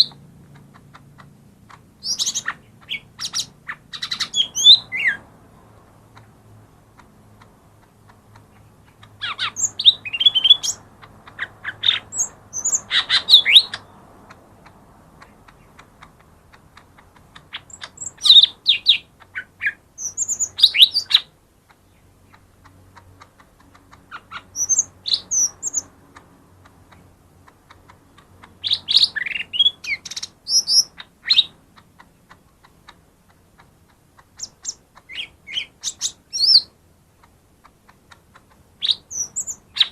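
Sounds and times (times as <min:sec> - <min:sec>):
bird singing warbling chirps: 0:00.0 - 0:07.0, 0:08.0 - 0:14.0, 0:17.3 - 0:26.2, 0:27.7 - 0:31.6, 0:34.3 - 0:36.8, 0:38.8 - 0:39.9.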